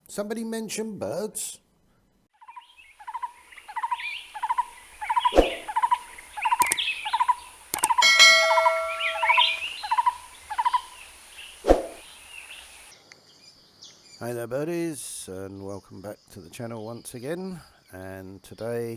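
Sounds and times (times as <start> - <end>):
bird calling repeated short notes: 5.1 - 9.8
sharp clicks: 6.6 - 6.9, 7.7 - 8.0
steady ringing tone: 8.0 - 9.7.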